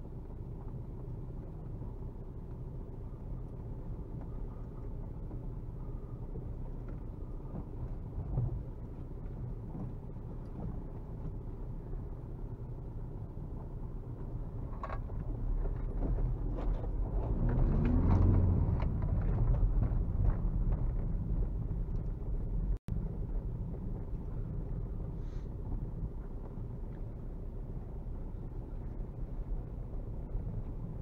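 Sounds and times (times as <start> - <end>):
diesel car engine from inside cabin: 0.0 - 31.0
knocks and clicks from rough track: 14.6 - 24.4.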